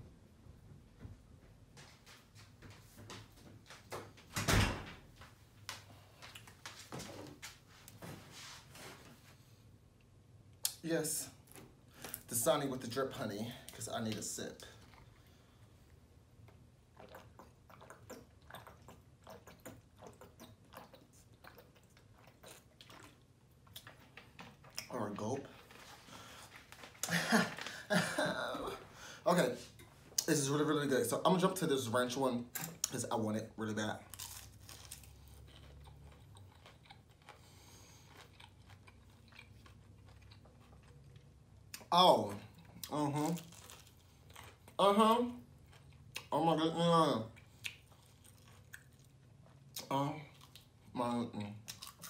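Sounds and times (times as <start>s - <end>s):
chewing with small crunches: 13.1s - 27.7s, 33.8s - 46.4s, 47.1s - 52.0s
mouth sounds eating and drinking: 16.8s - 25.6s.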